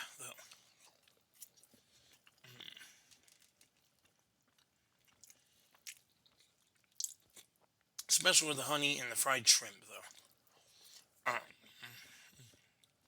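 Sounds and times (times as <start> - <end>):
chewing fried shrimp: 0.1 - 8.3, 9.9 - 13.0
soft mouth clicks: 7.0 - 7.2.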